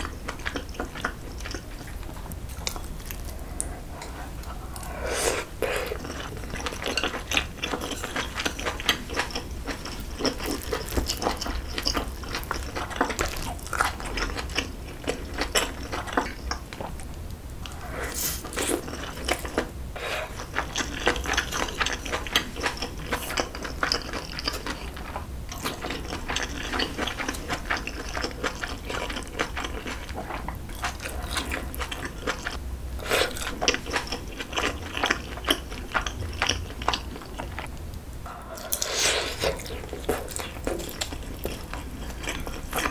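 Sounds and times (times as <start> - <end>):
wet chewing and mouth smacking: 0.0 - 19.7, 38.3 - 42.9.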